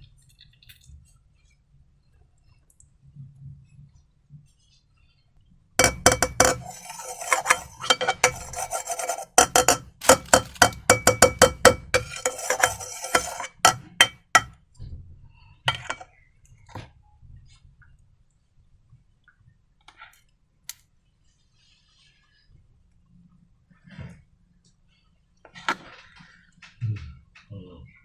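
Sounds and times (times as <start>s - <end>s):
utensil scraping against a bowl: 5.8s - 14.5s, 15.7s - 16.1s.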